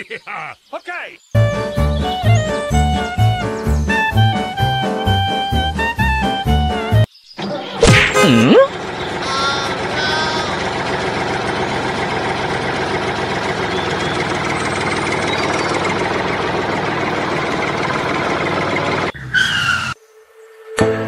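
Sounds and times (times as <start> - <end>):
tractor engine running: 7.9 - 19.2.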